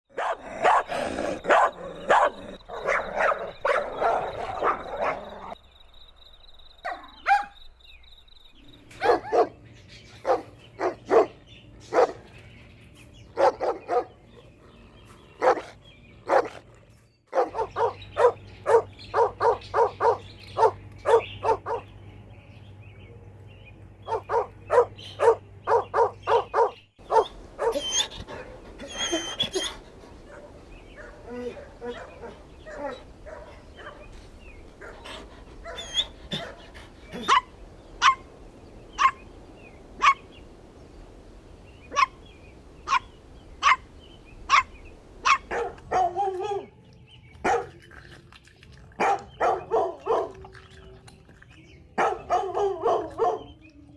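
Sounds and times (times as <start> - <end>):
dogs barking: 0.1 - 5.6, 6.8 - 7.6, 8.9 - 9.6, 10.2 - 12.4, 13.2 - 14.5, 15.4 - 16.7, 17.3 - 22.0, 24.0 - 39.3, 40.0 - 40.3, 41.9 - 42.2, 42.8 - 43.9, 44.5 - 46.8, 47.4 - 53.6
high-pitched dog yips: 27.6 - 28.2, 28.8 - 29.8, 35.7 - 36.5.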